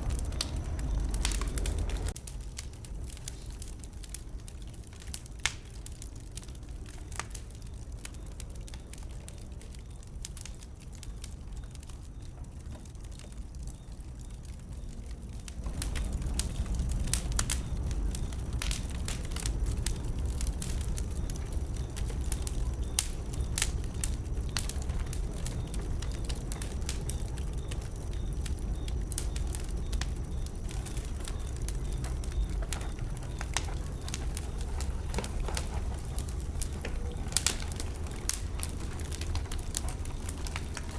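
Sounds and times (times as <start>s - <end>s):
low rumble: 0.0s - 4.8s, 14.6s - 40.9s
bonfire crackling and popping: 0.0s - 40.9s.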